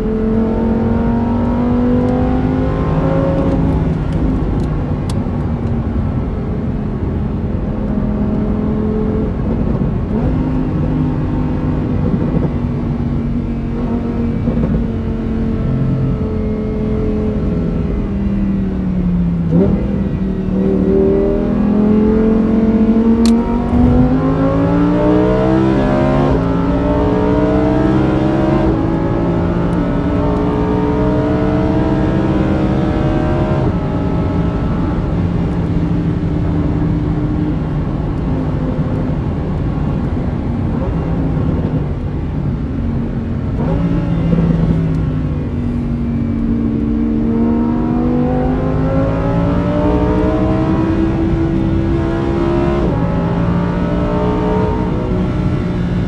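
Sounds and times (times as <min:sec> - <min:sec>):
car engine accelerating through gears: 0:00.0 - 0:56.0.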